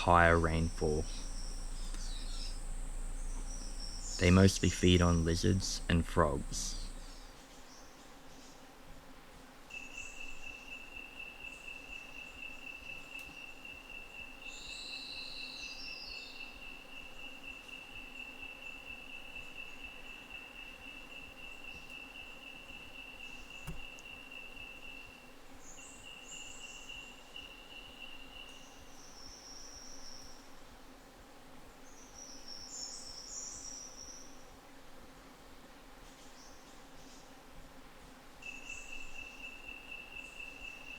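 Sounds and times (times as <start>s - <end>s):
insect high-pitched trill: 0.0s - 7.3s, 38.4s - 40.9s
sharp click: 23.7s - 24.0s.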